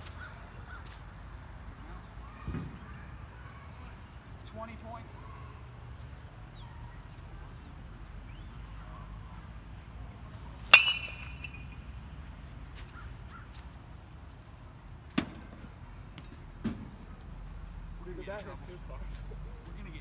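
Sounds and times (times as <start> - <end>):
baseball bat striking ball: 10.7 - 11.9.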